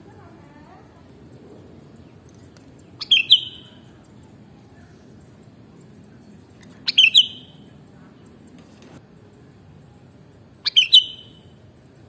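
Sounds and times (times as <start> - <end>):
steady low background noise: 0.0 - 12.0
bird call: 2.9 - 5.0, 6.7 - 7.7, 10.6 - 11.6.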